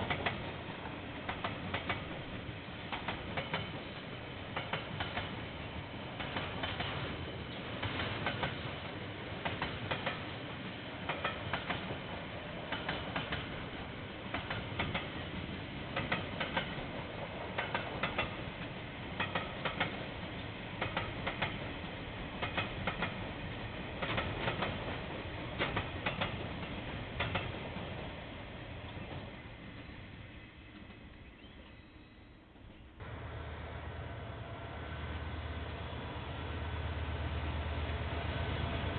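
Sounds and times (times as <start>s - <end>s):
train wheels clicking over rail joints: 0.0s - 29.9s
train rumble: 0.0s - 38.9s.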